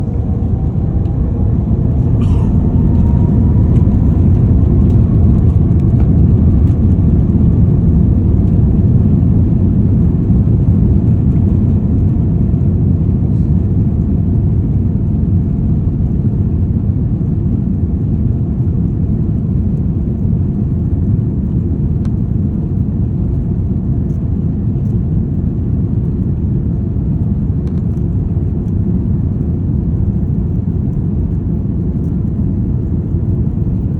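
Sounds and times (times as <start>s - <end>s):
faint rising whine: 0.0s - 8.6s
jet engines roaring: 0.0s - 17.3s.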